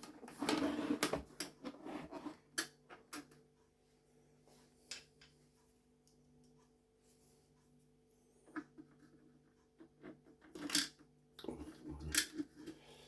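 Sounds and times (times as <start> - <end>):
plastic parts clicking and rattling: 10.3 - 11.0.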